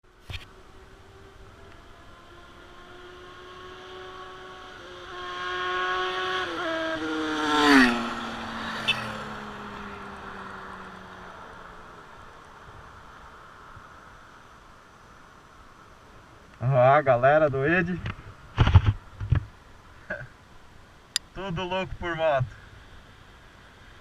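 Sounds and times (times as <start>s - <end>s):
motorcycle passing by: 0.5s - 14.0s.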